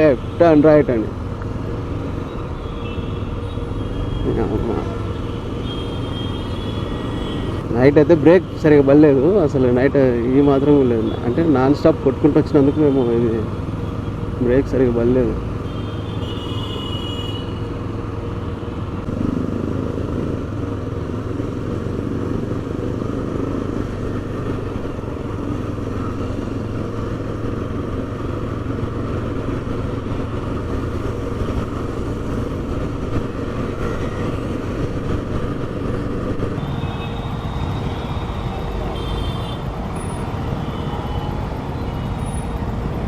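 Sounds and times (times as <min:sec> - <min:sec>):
motorcycle engine running: 0:19.0 - 0:37.4.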